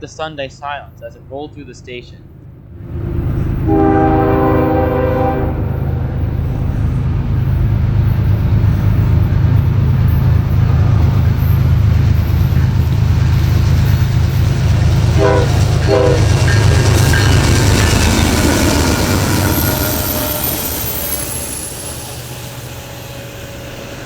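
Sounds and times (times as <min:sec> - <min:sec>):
diesel locomotives rumbling past: 0:00.0 - 0:24.0
train air horn blasts: 0:03.6 - 0:06.9, 0:15.1 - 0:17.3.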